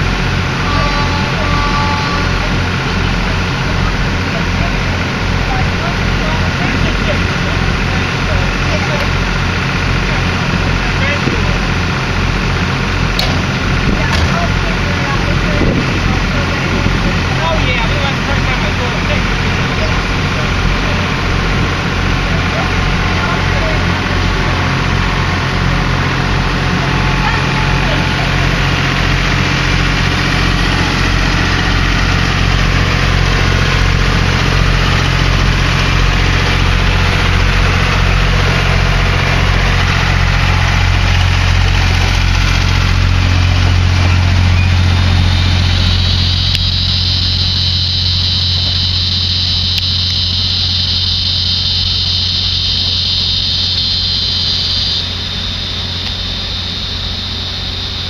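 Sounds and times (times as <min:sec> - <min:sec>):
train coaches rolling past: 0:00.0 - 0:46.3
diesel train engine drone: 0:00.0 - 0:58.0
high steady whine: 0:00.0 - 0:58.0.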